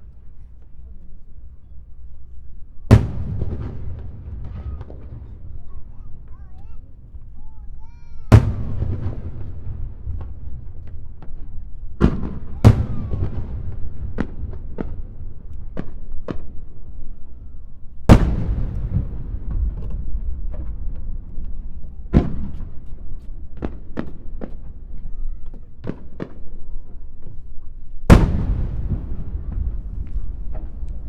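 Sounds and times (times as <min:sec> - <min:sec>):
firework shells booming: 0:01.4 - 0:31.0
small firework cracks: 0:02.9 - 0:31.0
steady low rumble: 0:17.8 - 0:23.5, 0:28.1 - 0:31.0.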